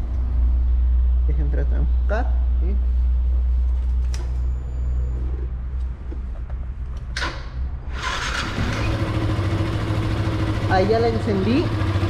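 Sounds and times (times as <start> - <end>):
motorcycle starter cranking: 7.1 - 10.4
motorcycle engine idling: 8.0 - 12.0.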